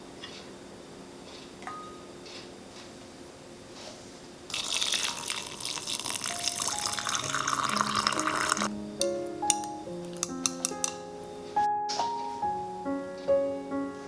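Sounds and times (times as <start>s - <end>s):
tap water running into sink: 4.5s - 8.7s.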